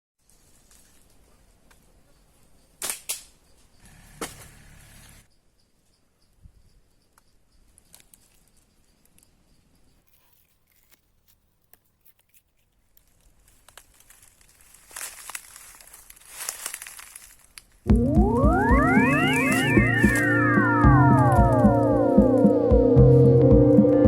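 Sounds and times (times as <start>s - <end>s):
faint outdoor background: 0.2s - 24.0s
sharp snaps: 2.8s - 3.4s
light clicks and crackles: 10.0s - 17.8s.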